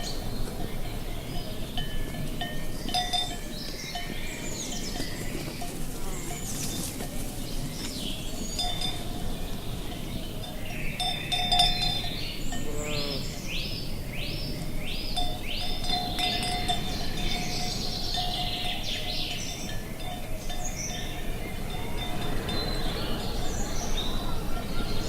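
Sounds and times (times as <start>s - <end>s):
cowbells clanking: 0.0s - 25.0s
rising chirps: 20.7s - 25.0s
wind rushing: 21.0s - 25.0s.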